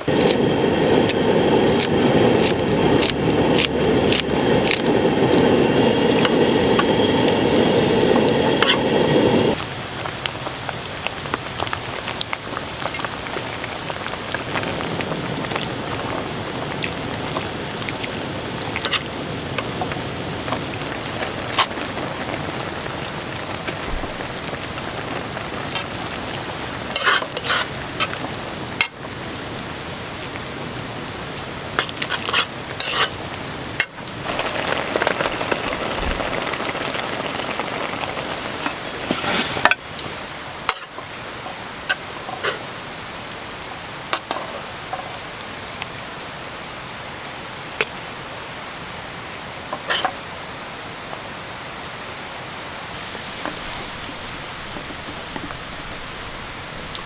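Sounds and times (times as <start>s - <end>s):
steady rush of sound: 0.0s - 9.6s, 14.4s - 26.6s, 34.0s - 40.0s, 52.9s - 57.0s
food sizzling in a pan: 0.0s - 43.0s, 49.8s - 50.2s, 52.8s - 57.0s.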